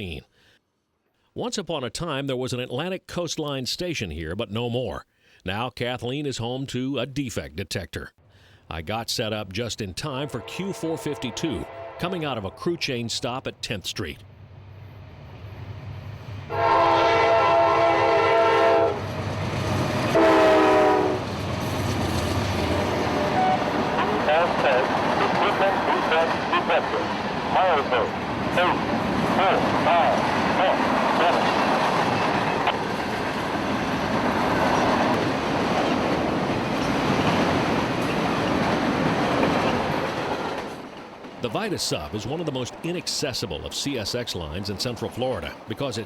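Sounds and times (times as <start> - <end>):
locomotive air horn blasts: 10.2 - 12.8, 16.5 - 19.1, 20.1 - 21.3, 23.1 - 24.6
train rumbling: 14.2 - 46.0.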